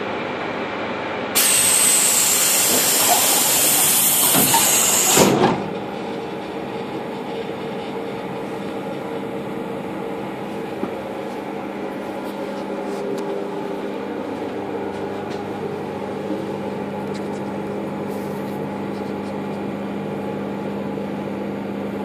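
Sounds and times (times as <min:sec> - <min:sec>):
pneumatic door air hiss: 0:01.4 - 0:05.6
train door shutting: 0:01.4 - 0:09.1
train motors humming: 0:01.4 - 0:22.0.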